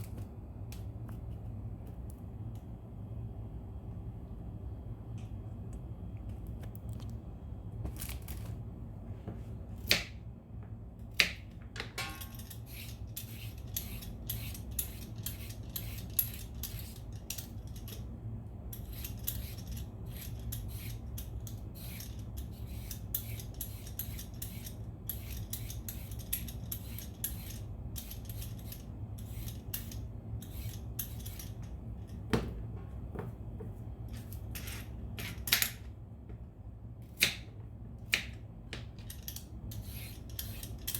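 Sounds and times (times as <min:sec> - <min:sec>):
steady low hum: 0:00.0 - 0:40.9
peeler scraping vegetable: 0:12.5 - 0:17.2, 0:18.8 - 0:31.6, 0:39.7 - 0:40.9.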